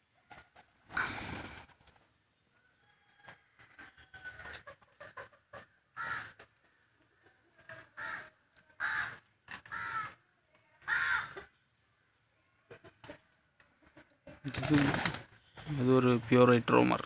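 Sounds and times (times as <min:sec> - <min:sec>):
pigeons pecking grain on concrete: 0:12.8 - 0:15.8.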